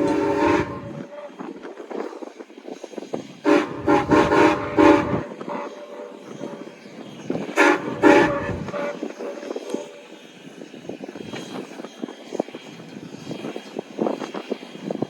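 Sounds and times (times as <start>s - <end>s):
train horn blasts: 0.0s - 2.2s, 3.4s - 10.3s
low train rumble: 0.0s - 15.0s.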